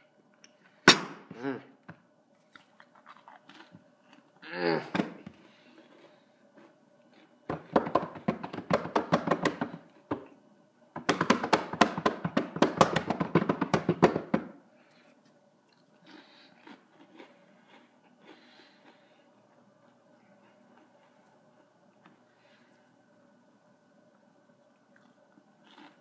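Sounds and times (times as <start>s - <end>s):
crackers being crunched: 2.4s - 4.4s.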